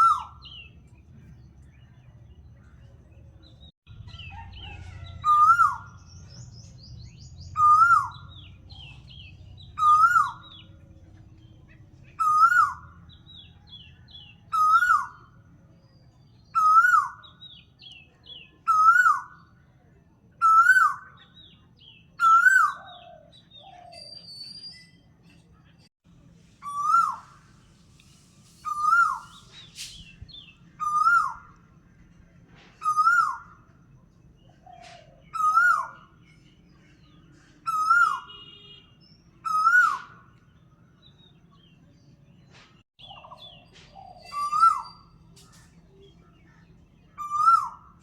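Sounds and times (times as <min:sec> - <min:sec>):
bird call rising and falling: 0:28.6 - 0:31.6, 0:43.0 - 0:45.7.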